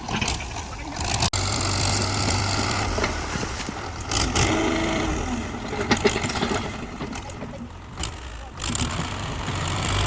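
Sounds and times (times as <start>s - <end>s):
heavy machine engine running: 1.0s - 10.0s.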